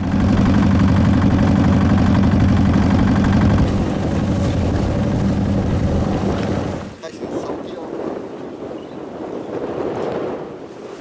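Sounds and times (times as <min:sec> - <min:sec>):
boat engine running: 0:00.0 - 0:07.2.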